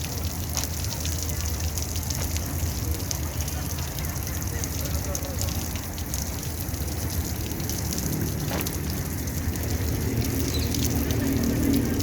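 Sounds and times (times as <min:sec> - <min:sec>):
running water splashing: 0:00.0 - 0:12.0.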